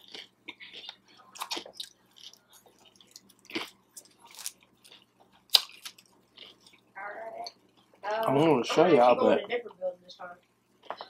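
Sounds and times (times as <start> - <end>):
person crunching fried egg roll: 0.0 - 6.9.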